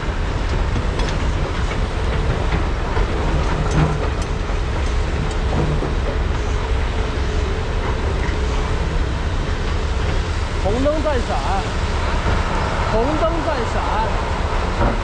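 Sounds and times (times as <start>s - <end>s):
excavator diesel engines droning: 0.0s - 15.0s
metal clanks and knocks: 0.5s - 6.6s.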